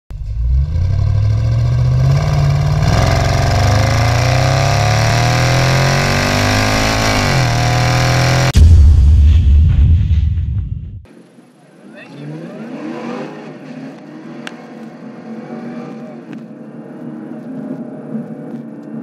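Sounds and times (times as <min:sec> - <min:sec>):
car engine accelerating: 0:00.1 - 0:08.6.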